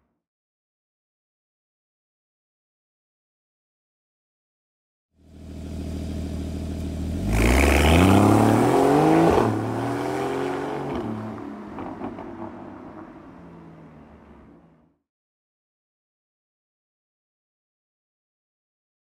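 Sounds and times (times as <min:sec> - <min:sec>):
sports car engine accelerating: 0:05.2 - 0:14.9.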